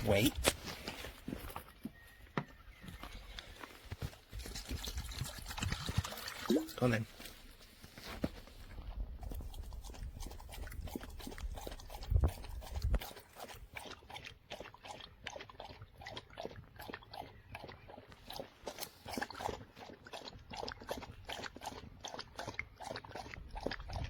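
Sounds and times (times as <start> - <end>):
dog eating with wet mouth clicks: 9.2 - 24.0.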